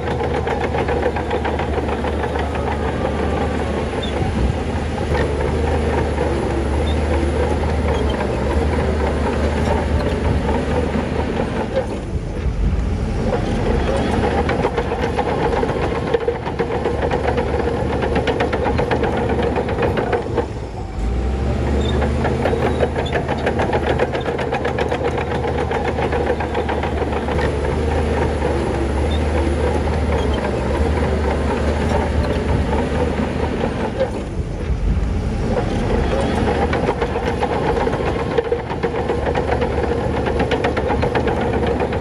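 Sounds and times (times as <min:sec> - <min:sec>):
bulldozer engine clattering: 0:00.0 - 0:42.0
deeper drone: 0:01.1 - 0:06.9.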